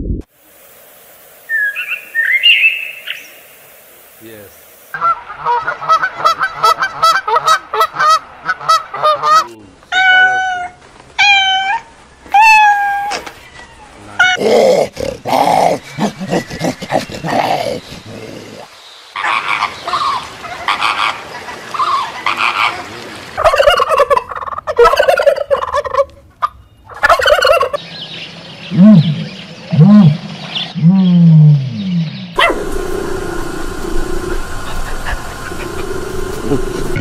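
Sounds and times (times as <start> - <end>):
turkeys gobbling: 5.0 - 10.6, 15.2 - 18.0, 19.2 - 27.8, 34.2 - 37.0
steady hum: 32.4 - 37.0.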